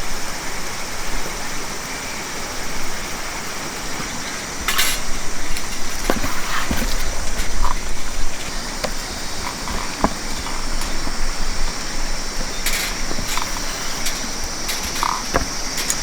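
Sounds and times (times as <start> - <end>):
fire popping and crackling: 3.8 - 16.0.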